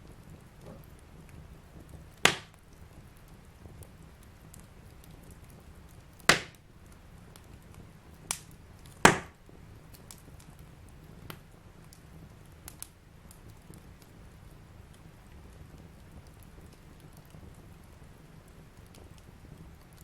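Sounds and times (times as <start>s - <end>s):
fireplace fire crackling: 0.0s - 20.0s
loud sharp pops: 2.2s - 2.6s, 6.2s - 6.6s, 8.3s - 9.4s.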